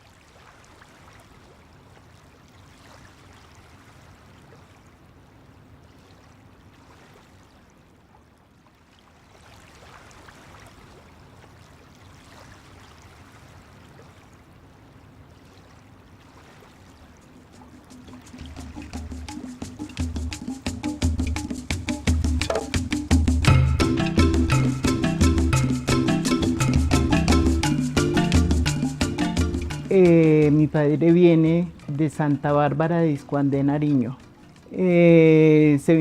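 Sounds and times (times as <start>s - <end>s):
flowing water: 0.0s - 23.5s.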